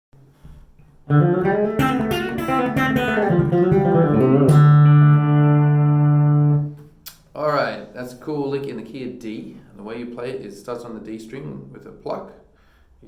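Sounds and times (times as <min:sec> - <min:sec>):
fast guitar picking: 0:01.1 - 0:06.8.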